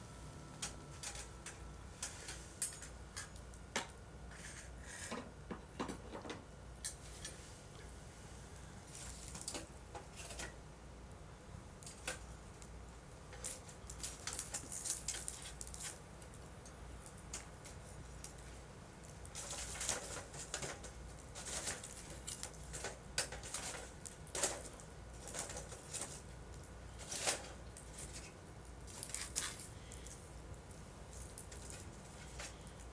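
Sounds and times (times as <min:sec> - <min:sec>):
campfire crackling: 0:12.2 - 0:27.0, 0:27.6 - 0:32.9.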